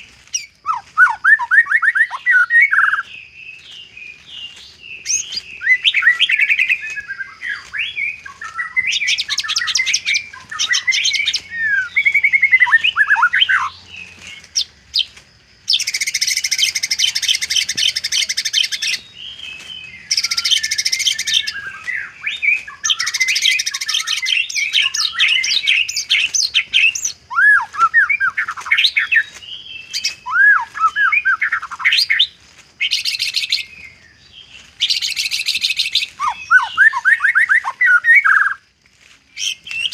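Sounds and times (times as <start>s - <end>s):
bird whistled notes: 0.3s - 15.1s, 15.7s - 34.0s, 34.8s - 38.6s
bird harsh rattling trills: 15.7s - 27.1s.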